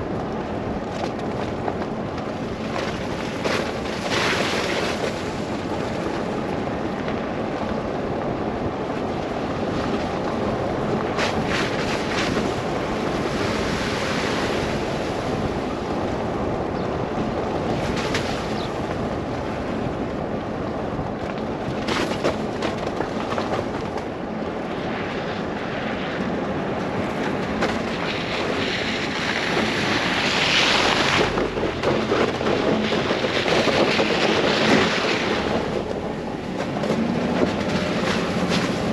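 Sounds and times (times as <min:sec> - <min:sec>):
car tyres on snow: 0:00.0 - 0:38.9
wind rushing: 0:24.6 - 0:38.9.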